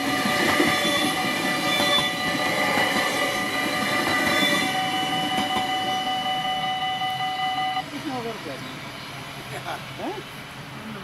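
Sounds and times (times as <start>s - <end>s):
crossing warning bells ringing: 0.0s - 8.8s
train rumbling on rails: 0.0s - 11.0s.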